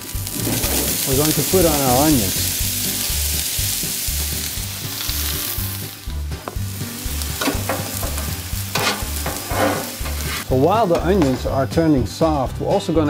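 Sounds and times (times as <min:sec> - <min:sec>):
onions sizzling on griddle: 0:00.0 - 0:12.6
metal spatula scraping: 0:00.2 - 0:01.1, 0:07.3 - 0:11.5.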